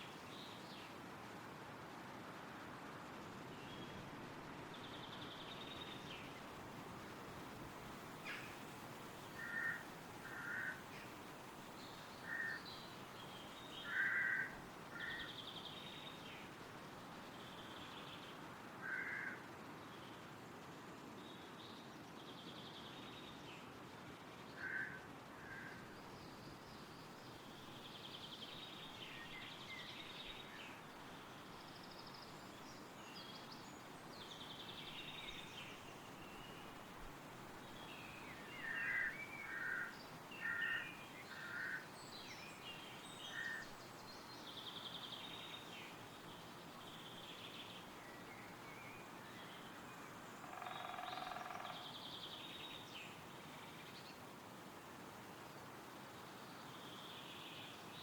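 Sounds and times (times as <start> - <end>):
wind rustling through trees: 0.0 - 58.0.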